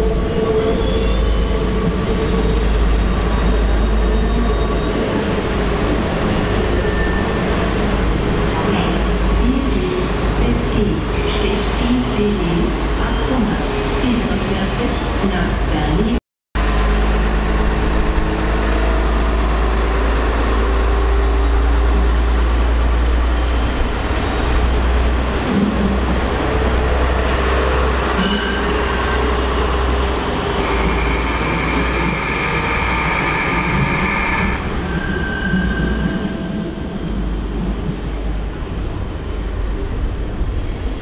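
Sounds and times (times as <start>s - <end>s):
train rumbling: 0.0s - 41.0s
high squeal: 28.2s - 29.5s, 37.1s - 38.4s.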